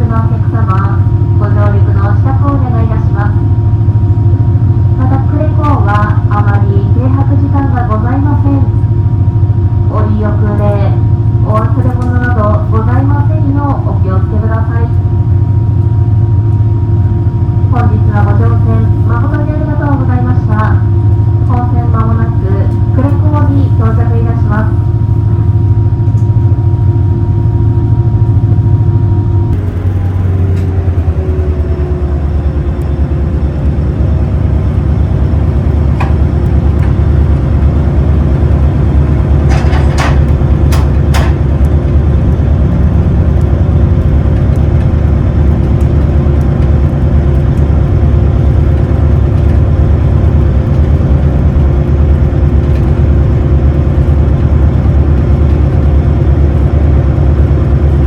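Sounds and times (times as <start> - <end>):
boat engines droning: 0.0 - 58.0
sharp knocks: 39.4 - 41.5.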